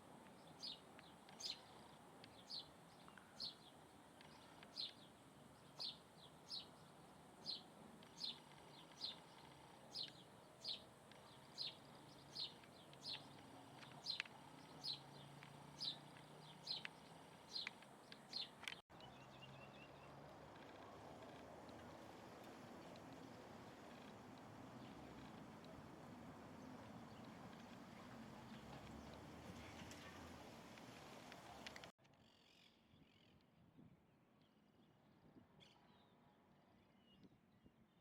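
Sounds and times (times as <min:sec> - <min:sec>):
faint hiss: 0:20.8 - 0:31.9.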